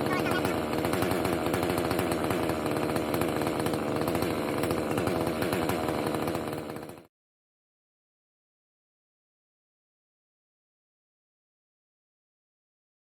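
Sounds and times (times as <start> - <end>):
chainsaw cutting log: 0.0 - 7.1.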